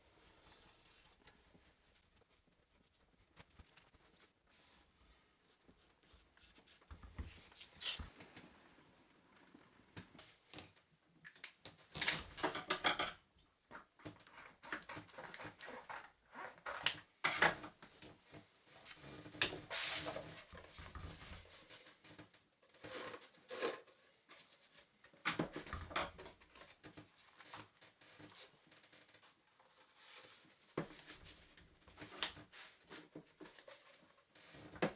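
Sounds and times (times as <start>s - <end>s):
scratchy strokes and rustles: 0.0s - 8.4s.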